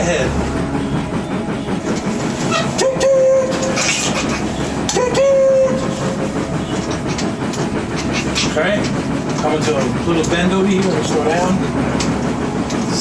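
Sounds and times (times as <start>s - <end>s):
train whistle blasts: 0.0s - 9.4s
train wheels clattering: 0.0s - 13.0s.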